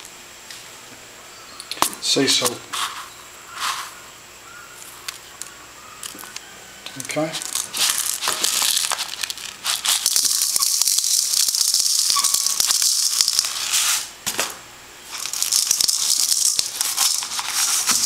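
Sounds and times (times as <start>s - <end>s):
salt grains shaken onto steak: 7.4s - 14.1s.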